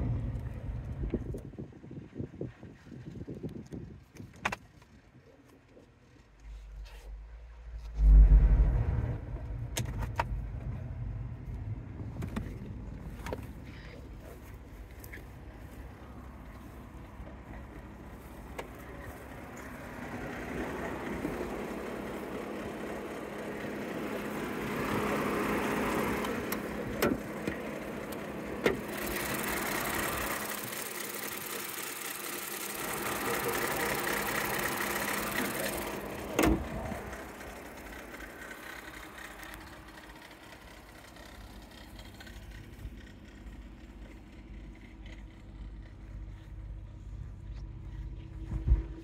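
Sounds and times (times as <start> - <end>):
car engine idling: 5.3 - 49.0
rush of noise: 7.7 - 13.0.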